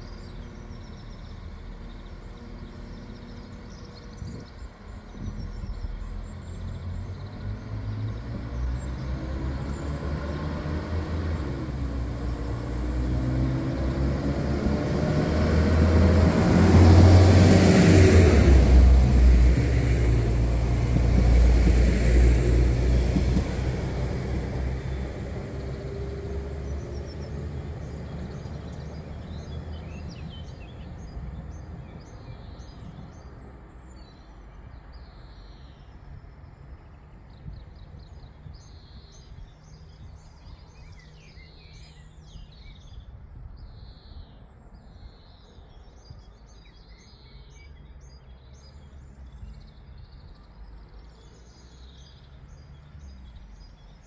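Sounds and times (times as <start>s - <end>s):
passing train rumble: 0.0s - 43.6s
high train whine: 9.1s - 33.4s.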